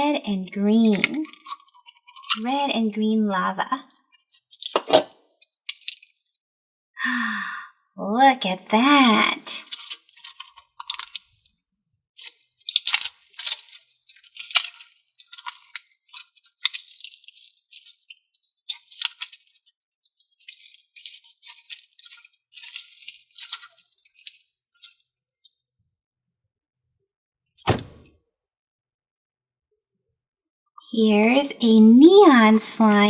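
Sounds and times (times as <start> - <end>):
sharp thump: 27.6 - 28.1.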